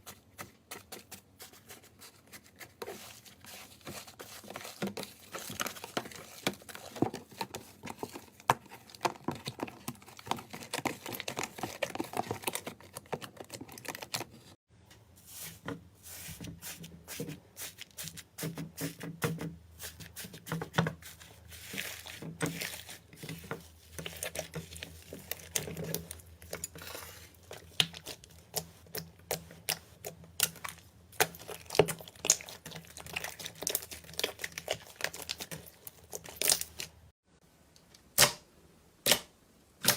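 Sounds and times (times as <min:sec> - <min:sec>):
slime crackling and popping: 0:30.4 - 0:36.9.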